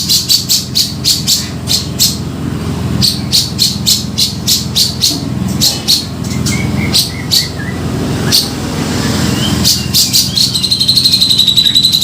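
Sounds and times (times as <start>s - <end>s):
steady low hum: 0.0s - 12.0s
bird chirping sharply: 3.0s - 12.0s.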